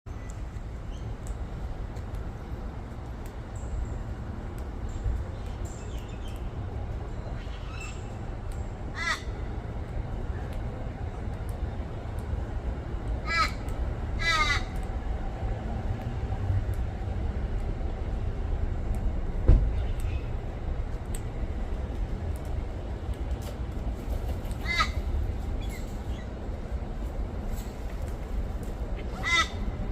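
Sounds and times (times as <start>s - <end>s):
steady low rumble: 0.1s - 29.9s
crow cawing: 9.0s - 9.3s, 14.2s - 14.7s, 29.2s - 29.6s.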